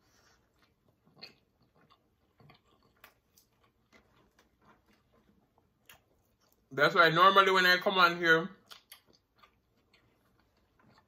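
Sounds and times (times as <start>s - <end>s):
person biting and chewing: 0.5s - 6.7s, 8.6s - 11.0s.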